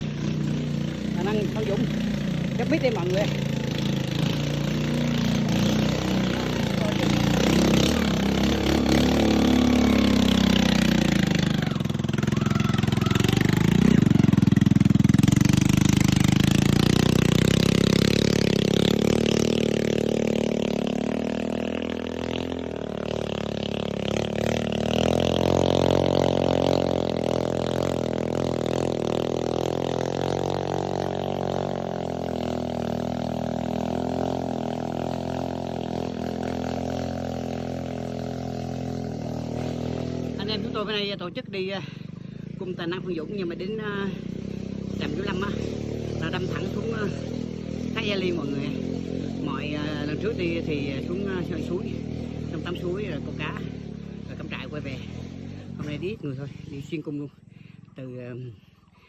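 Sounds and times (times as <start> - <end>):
dirt bike engine: 0.0 - 59.0.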